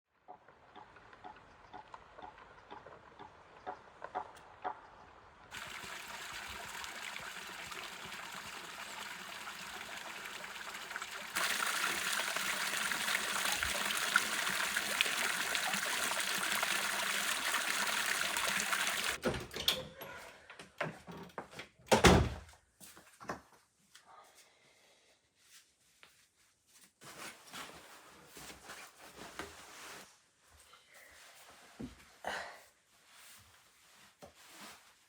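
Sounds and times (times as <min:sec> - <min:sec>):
water running and trickling: 0:05.5 - 0:19.2.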